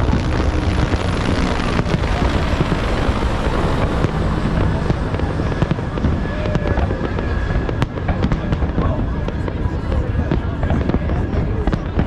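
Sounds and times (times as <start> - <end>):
firework cracks and bangs: 0.0 - 12.0
fireworks rumble: 0.0 - 12.0.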